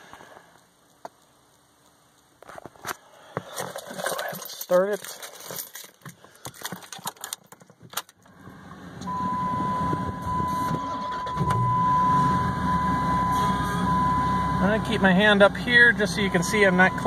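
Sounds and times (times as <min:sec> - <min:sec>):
clicks and rustles: 0:00.1 - 0:08.4
car engine starting and idling: 0:08.0 - 0:17.0
steady high tone: 0:09.1 - 0:17.0.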